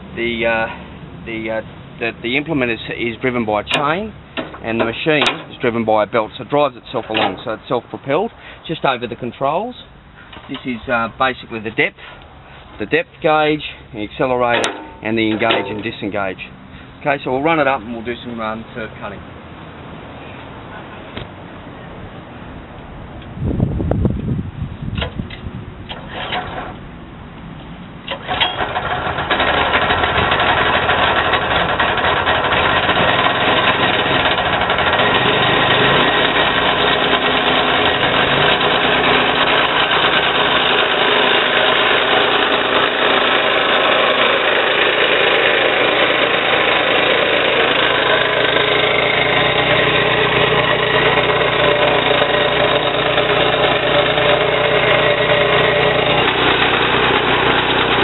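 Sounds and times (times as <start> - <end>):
engine starting and running: 2.3 - 9.2, 13.5 - 17.8, 25.0 - 26.9, 28.0 - 58.0.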